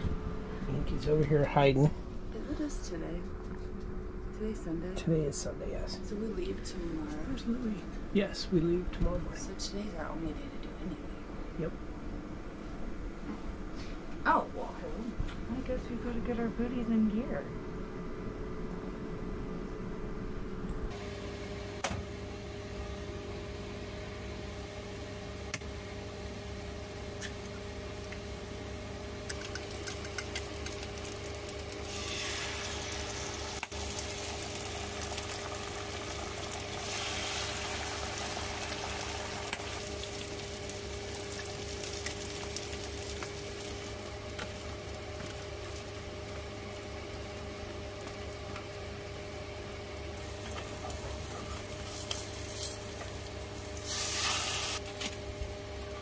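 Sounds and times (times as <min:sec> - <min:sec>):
steady low hum: 0:00.0 - 0:56.0
food sizzling in skillets: 0:29.4 - 0:46.9, 0:50.2 - 0:55.0.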